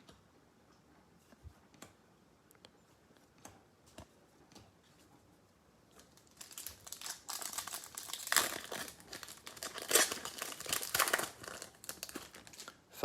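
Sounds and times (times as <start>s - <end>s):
plastic wrapper crinkling and tearing: 5.9s - 13.0s.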